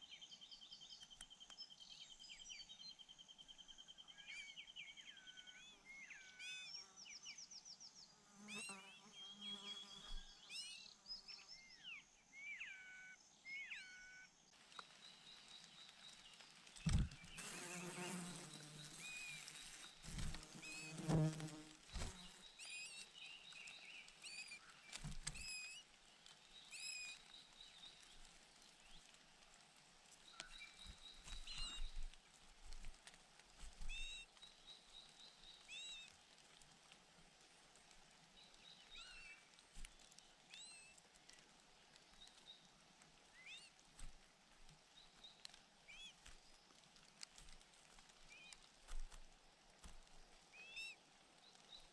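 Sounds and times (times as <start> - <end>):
small birds chirping: 0.0 - 51.9
rustle or knock: 15.6 - 22.4.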